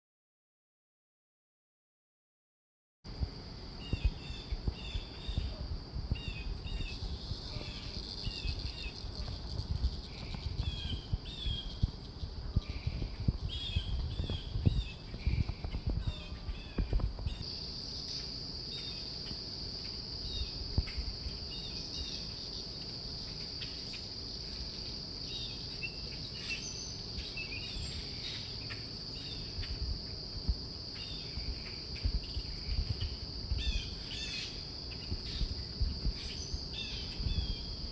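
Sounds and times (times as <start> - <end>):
high-pitched insect drone: 3.4 - 37.9
bird chirps: 6.2 - 17.5, 25.2 - 29.8
low thumps and rumble: 8.4 - 17.4, 31.3 - 33.8, 37.1 - 37.9.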